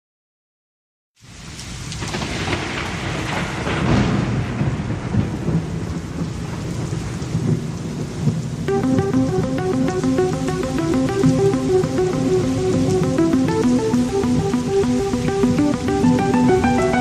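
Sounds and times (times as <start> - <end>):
steady rain: 1.2 - 17.0
thunder rumbling: 2.0 - 10.8.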